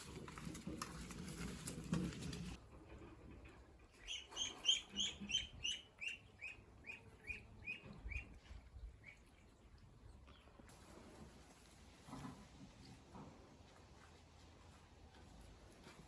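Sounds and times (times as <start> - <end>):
bird chirping: 4.0 - 8.3.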